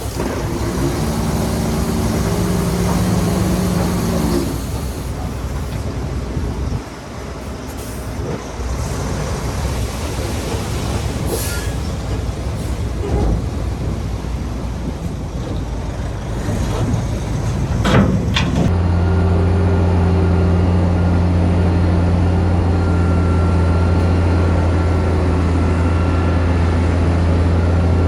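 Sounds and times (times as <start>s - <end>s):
heavy diesel machinery working: 0.0s - 28.0s.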